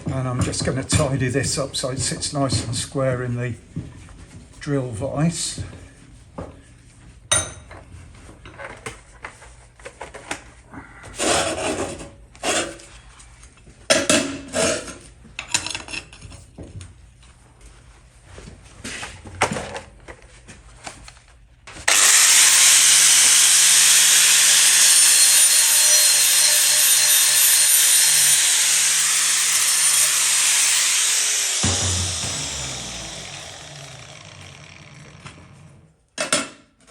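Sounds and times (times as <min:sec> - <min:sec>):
angle grinder grinding metal: 0:21.9 - 0:35.9.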